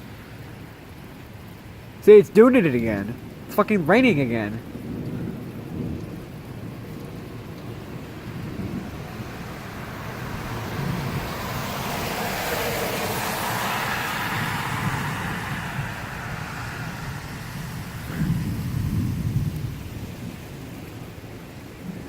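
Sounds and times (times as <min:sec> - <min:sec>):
rain falling: 0:00.0 - 0:22.0
tyres hissing on wet road: 0:00.0 - 0:22.0.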